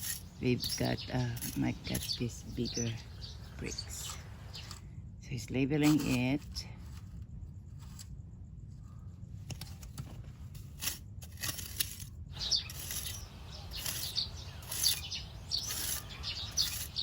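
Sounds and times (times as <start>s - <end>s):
birds chirping faintly: 0.0s - 6.6s, 12.3s - 17.0s.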